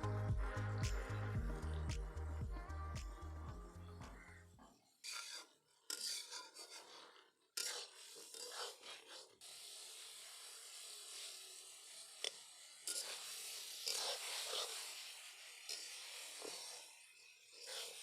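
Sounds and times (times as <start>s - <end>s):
spatula scraping cooking pan: 5.0s - 18.0s
steady sizzling hiss: 9.4s - 18.0s.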